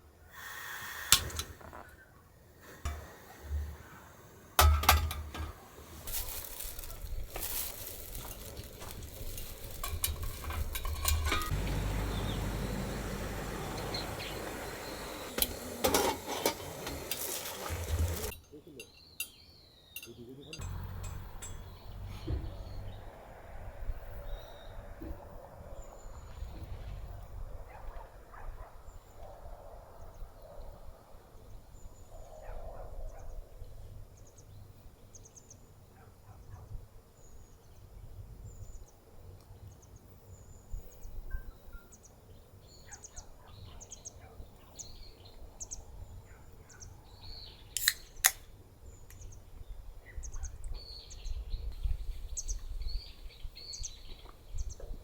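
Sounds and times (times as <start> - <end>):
small birds chirping: 5.6 - 15.8, 16.8 - 23.2, 36.4 - 55.0
low rumble: 20.6 - 27.7
sharp snaps: 47.8 - 48.5.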